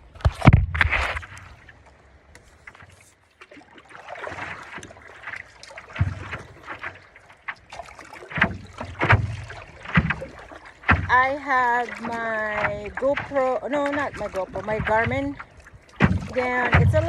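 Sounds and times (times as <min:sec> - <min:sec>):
paddle strokes splashing: 0:00.0 - 0:17.0
dull knocks: 0:05.9 - 0:07.0, 0:07.7 - 0:17.0.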